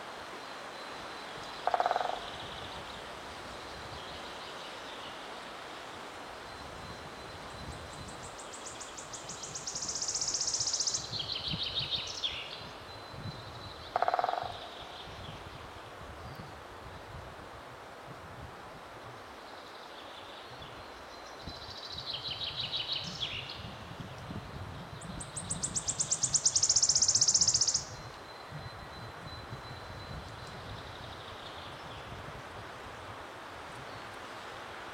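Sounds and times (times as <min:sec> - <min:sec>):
animal croaks: 0:01.6 - 0:02.3.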